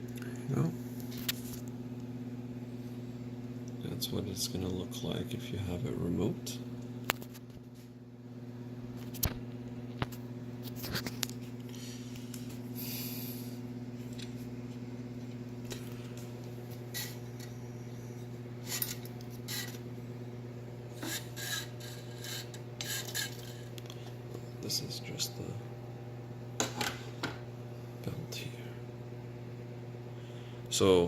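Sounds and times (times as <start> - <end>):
steady low hum: 0.0 - 31.0
metal parts scraping: 21.0 - 23.7.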